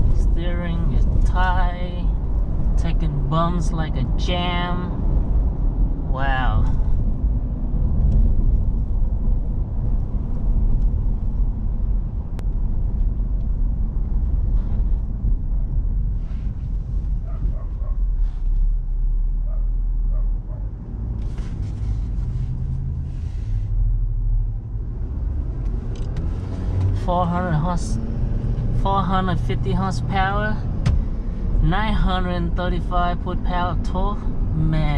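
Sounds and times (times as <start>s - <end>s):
diesel truck rumble in cab: 0.0s - 34.9s.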